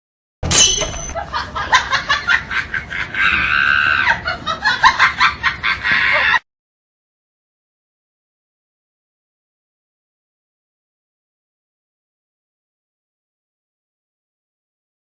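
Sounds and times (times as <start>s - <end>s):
people laughing: 1.1s - 6.4s
long high-pitched cry: 3.2s - 4.2s.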